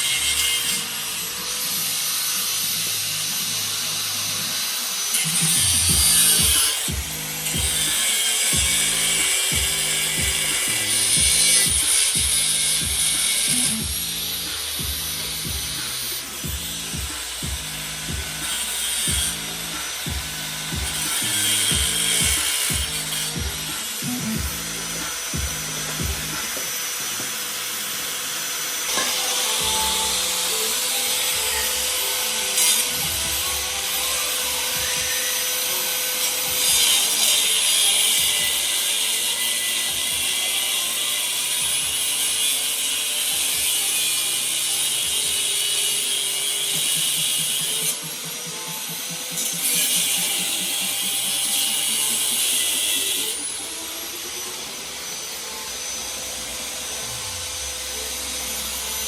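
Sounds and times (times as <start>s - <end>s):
power tool sawing: 0.0s - 59.0s
music with low repeating beat: 5.6s - 7.9s, 8.5s - 26.6s, 46.8s - 53.6s.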